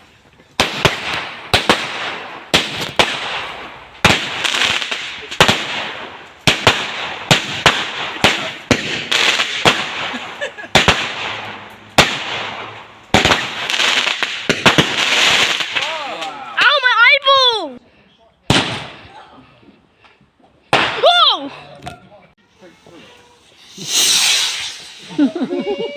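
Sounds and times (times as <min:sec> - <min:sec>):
fireworks bangs with crackle: 0:00.0 - 0:16.4, 0:18.5 - 0:19.1, 0:20.7 - 0:21.2, 0:23.5 - 0:25.9.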